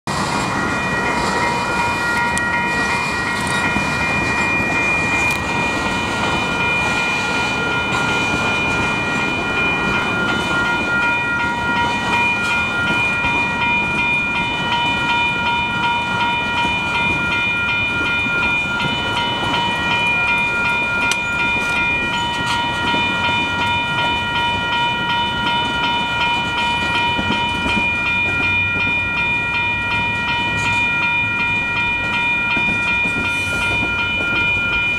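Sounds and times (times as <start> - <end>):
railroad crossing bells ringing: 0.1 - 34.9
train rolling slowly: 0.1 - 34.9.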